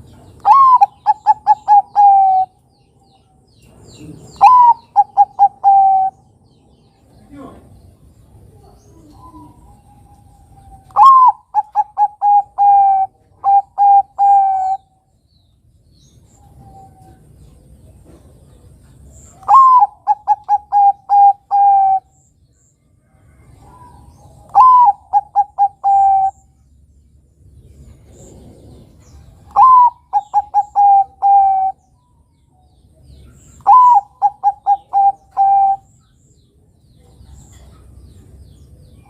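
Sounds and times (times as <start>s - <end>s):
dove cooing: 0.4s - 2.6s, 4.0s - 6.3s, 8.5s - 14.9s, 19.3s - 22.2s, 23.3s - 26.6s, 28.0s - 31.9s, 33.4s - 35.9s.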